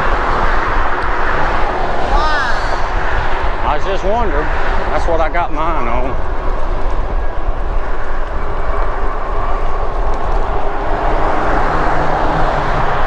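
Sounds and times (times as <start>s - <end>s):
wind and road noise: 0.0s - 13.0s
wind rumbling on microphone: 0.0s - 13.0s.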